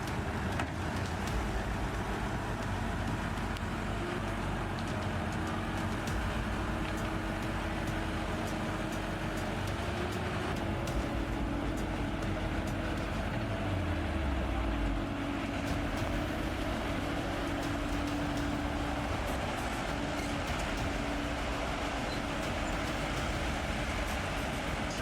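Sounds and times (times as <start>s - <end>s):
heavy machine engine running: 0.0s - 25.0s.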